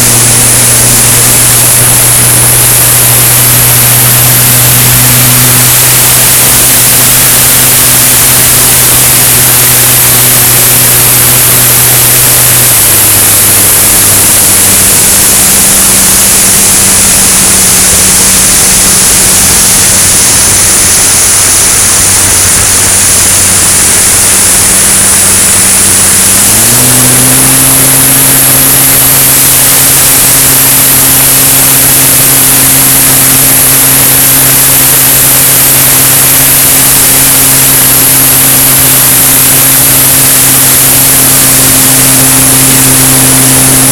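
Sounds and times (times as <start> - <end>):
light aircraft engine drone: 0.0 - 43.9
air rushing: 7.4 - 29.6.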